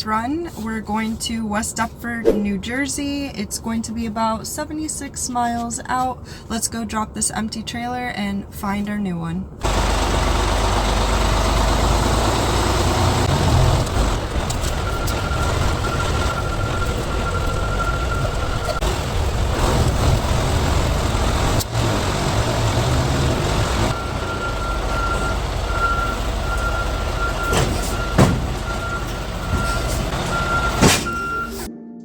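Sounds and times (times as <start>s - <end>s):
truck diesel engine rumbling: 9.6s - 31.7s
reversing alarm beeping: 13.4s - 19.1s, 23.5s - 31.7s.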